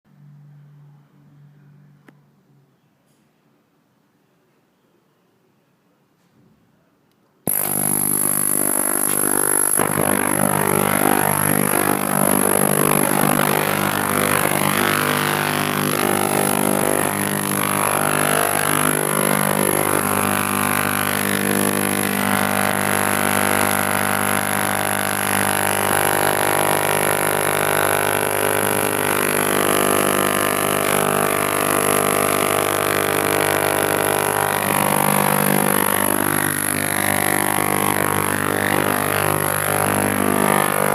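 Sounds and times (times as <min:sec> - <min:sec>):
thin high whine: 0:07.5 - 0:40.9
ultrasonic cleaner buzzing: 0:07.5 - 0:40.9.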